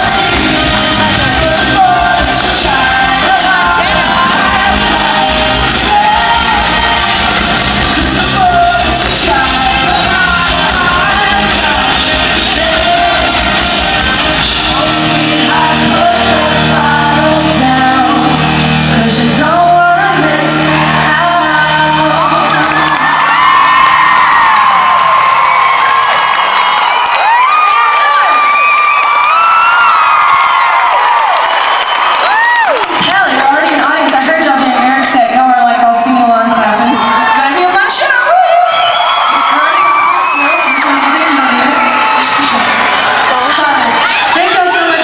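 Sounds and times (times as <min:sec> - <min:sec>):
woman singing: 0:00.0 - 0:23.2
pop-rock song: 0:00.0 - 0:24.6.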